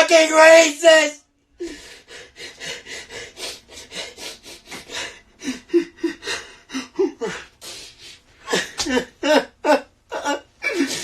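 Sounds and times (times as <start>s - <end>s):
man breathing heavily: 1.5s - 9.4s
whimpering sobs: 1.6s - 11.0s.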